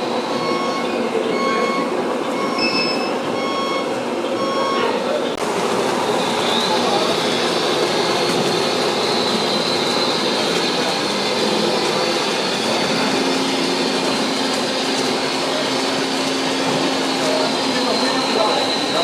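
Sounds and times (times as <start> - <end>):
model trucks running with whine: 5.3 - 19.0.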